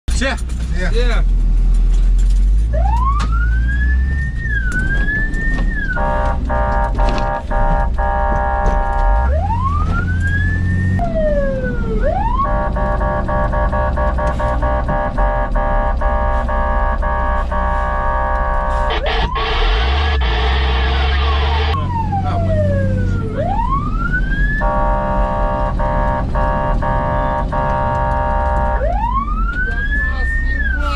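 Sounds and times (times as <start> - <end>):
low engine rumble: 0.1 - 30.9
fire engine siren: 2.7 - 30.9
fire engine horn blasts: 5.8 - 9.9, 12.3 - 21.8, 24.5 - 29.0.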